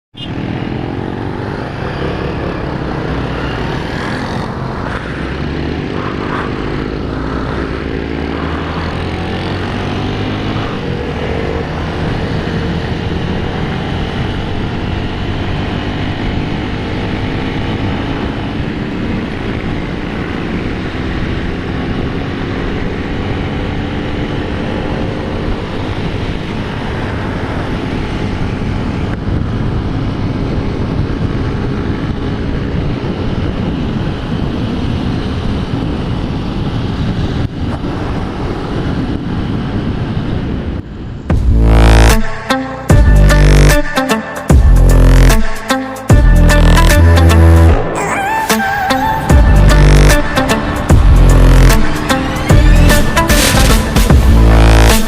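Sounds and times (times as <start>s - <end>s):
motorcycle engine accelerating: 0.2s - 55.0s
wind noise on microphone: 0.8s - 43.4s.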